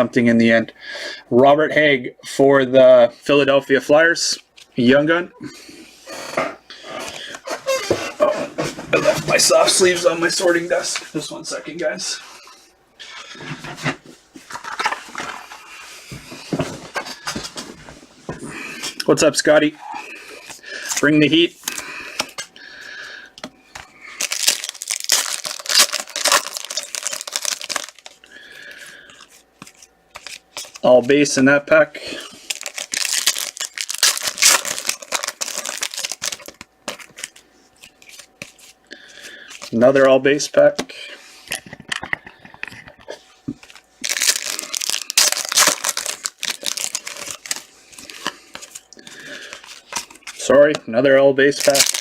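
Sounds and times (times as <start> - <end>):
cards rustling and clicking: 13.4 - 17.7, 23.7 - 28.2, 29.2 - 30.9, 32.3 - 40.1, 41.4 - 50.8, 51.6 - 52.0
wrapper tearing and crinkling: 24.2 - 28.2, 32.4 - 38.3, 44.0 - 50.4, 51.6 - 52.0.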